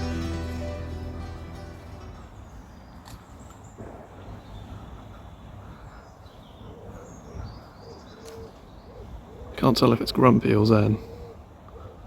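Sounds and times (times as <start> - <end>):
pigeon cooing: 11.0 - 12.0.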